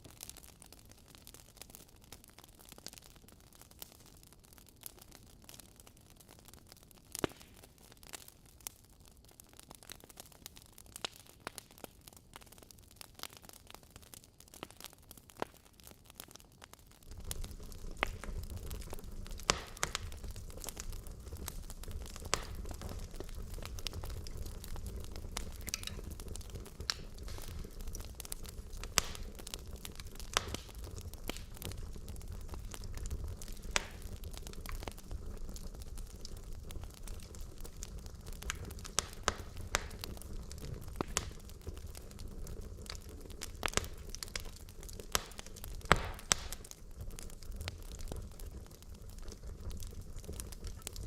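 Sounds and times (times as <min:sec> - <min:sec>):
low steady fire rumble: 0:00.0 - 0:51.0
wood logs burning crackling: 0:00.0 - 0:51.0
sharp fire pops: 0:07.1 - 0:08.3, 0:17.0 - 0:51.0.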